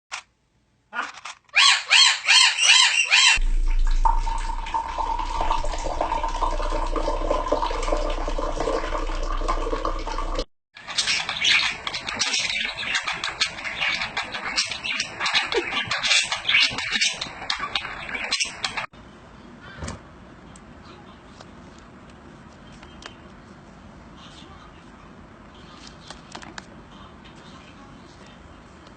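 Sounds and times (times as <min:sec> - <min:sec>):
birds chirping: 0:01.6 - 0:03.4, 0:10.8 - 0:19.9
low hum: 0:03.4 - 0:10.5
water-like rushing noise: 0:03.4 - 0:10.5.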